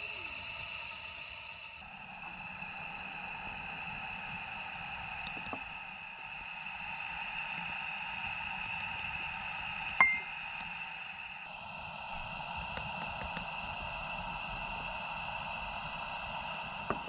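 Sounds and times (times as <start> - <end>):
sharp ringing clink: 10.0 - 10.3.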